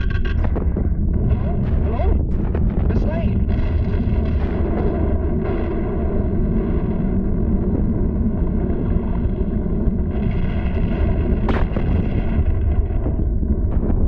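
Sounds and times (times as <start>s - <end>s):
deep rumble of volcanic eruption: 0.0s - 14.0s
sharp crack: 10.1s - 13.2s.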